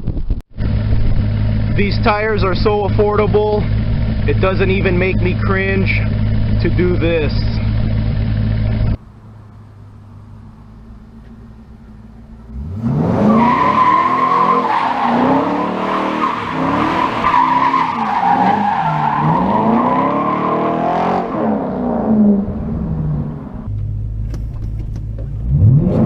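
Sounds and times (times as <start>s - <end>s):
car engine revving: 0.6s - 26.0s
tires squealing: 1.3s - 23.7s.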